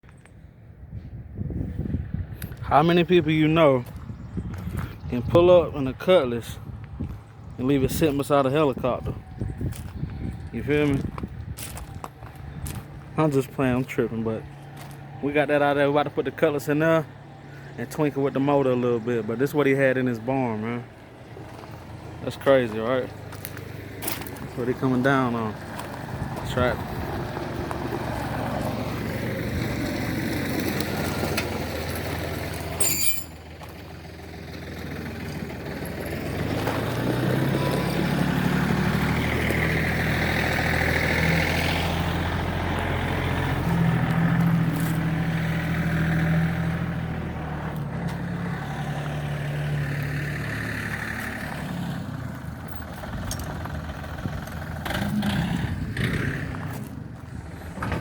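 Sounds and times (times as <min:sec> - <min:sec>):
vehicle engine running: 0:20.6 - 0:58.0.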